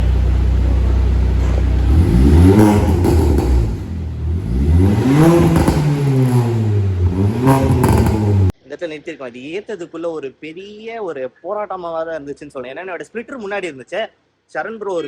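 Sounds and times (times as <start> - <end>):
car engine idling and revving: 0.0 - 8.6.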